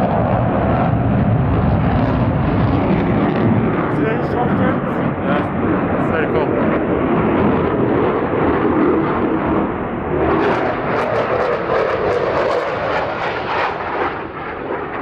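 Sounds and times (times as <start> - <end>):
jet engine roar with crackle: 0.0 - 15.0.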